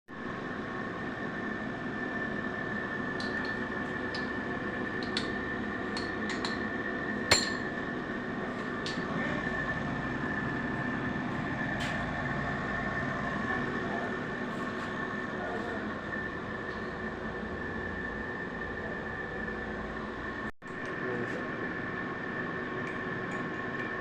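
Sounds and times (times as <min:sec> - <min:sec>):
constant high whine: 0:00.1 - 0:24.0
workshop hum: 0:00.1 - 0:24.0.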